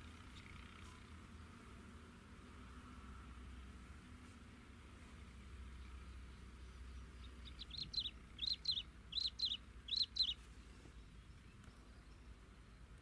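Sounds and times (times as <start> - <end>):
faint low outdoor hum: 0.0 - 13.0
bird chirping high: 6.1 - 12.9.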